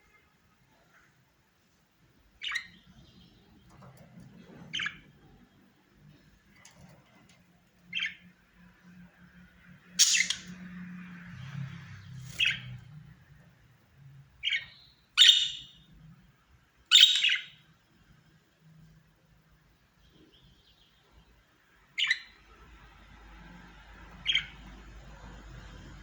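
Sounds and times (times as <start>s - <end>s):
budgerigar chirps: 10.0s - 10.5s, 14.4s - 15.8s, 16.9s - 17.6s.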